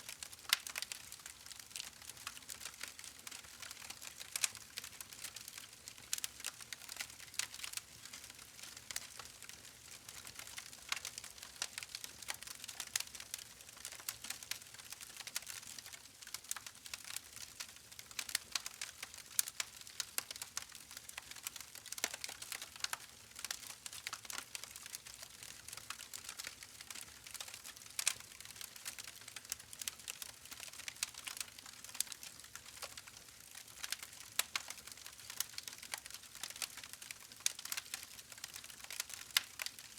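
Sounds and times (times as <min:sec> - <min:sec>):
campfire crackling: 0:00.5 - 0:01.2.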